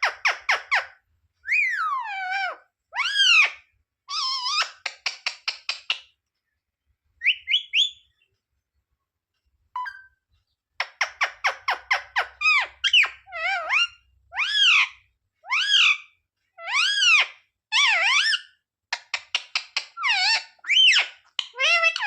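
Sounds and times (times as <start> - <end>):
parrot screeching and squawking: 0.0 - 5.4, 10.8 - 18.6, 19.8 - 22.0.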